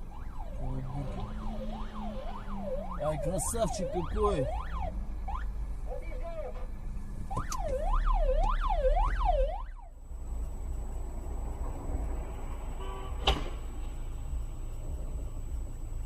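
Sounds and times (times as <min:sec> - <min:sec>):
siren sweeping up and down: 0:00.0 - 0:05.6, 0:07.3 - 0:10.0
road and engine rumble: 0:00.0 - 0:16.0.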